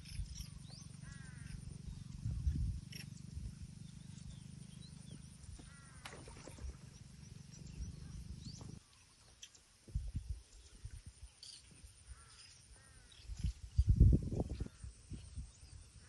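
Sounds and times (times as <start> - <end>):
steady low rumble: 0.0 - 8.8
birds chirping: 0.0 - 16.0
harsh caw-like bird call: 1.0 - 1.6, 5.6 - 6.4, 12.1 - 13.2.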